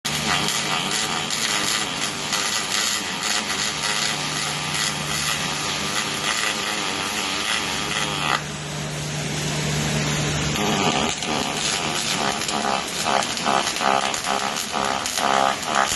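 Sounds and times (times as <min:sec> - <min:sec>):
welding arc crackling: 0:00.1 - 0:08.7, 0:10.1 - 0:15.9
low hum: 0:03.9 - 0:15.9.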